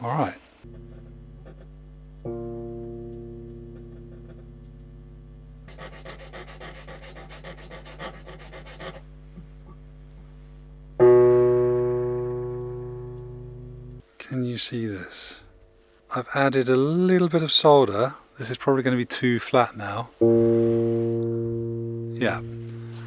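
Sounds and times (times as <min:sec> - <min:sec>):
electric piano note ringing: 0:00.6 - 0:06.0, 0:11.0 - 0:14.1, 0:20.2 - 0:23.0
metal filing strokes: 0:05.7 - 0:09.0.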